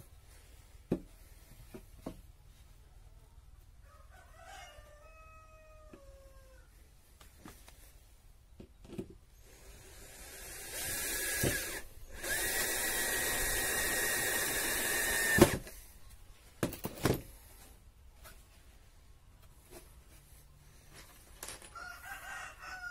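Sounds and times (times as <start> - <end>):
power tool whining: 9.4 - 15.7.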